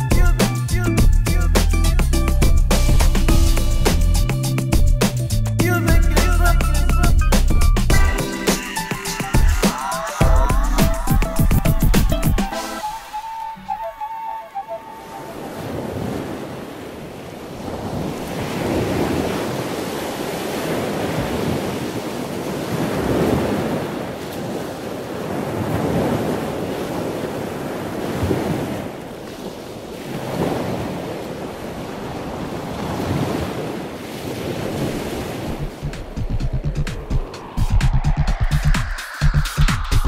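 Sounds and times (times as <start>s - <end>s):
water rushing along a hull: 7.9s - 40.0s
wind buffeting microphone: 15.0s - 40.0s.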